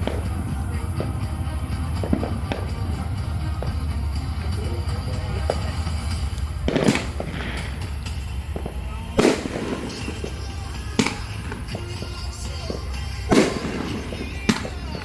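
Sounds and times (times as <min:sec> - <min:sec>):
fireworks booming: 0:00.0 - 0:15.0
music playing: 0:00.0 - 0:15.0.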